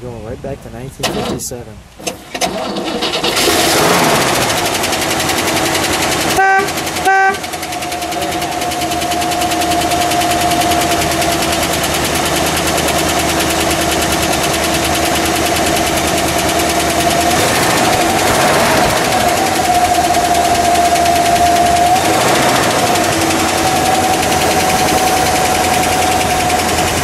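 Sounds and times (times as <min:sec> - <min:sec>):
car engine fast idle: 0:02.2 - 0:27.0
car horn toots: 0:06.3 - 0:11.2.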